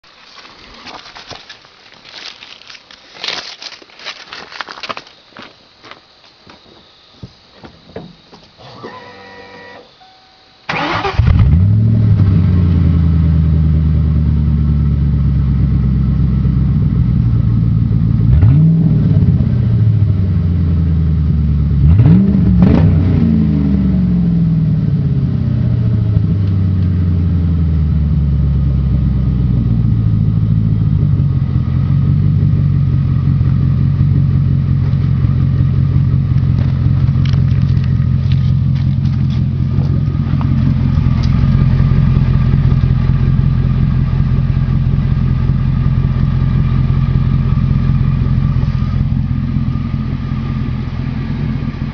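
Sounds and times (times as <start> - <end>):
engine revving: 10.7 - 13.8, 18.3 - 19.8, 21.8 - 24.5
car engine starting and idling: 10.7 - 51.9.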